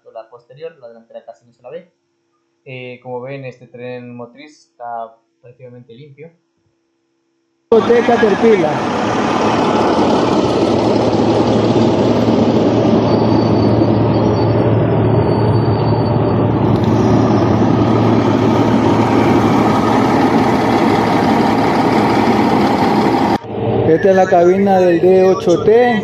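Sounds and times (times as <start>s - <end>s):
bulldozer diesel engine running: 7.7s - 25.8s.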